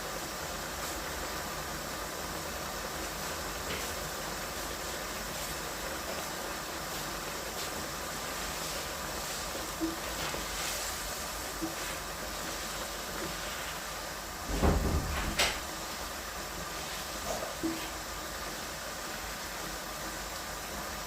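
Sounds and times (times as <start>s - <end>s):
steady hiss: 0.0s - 21.0s
heavy knock: 14.5s - 15.7s.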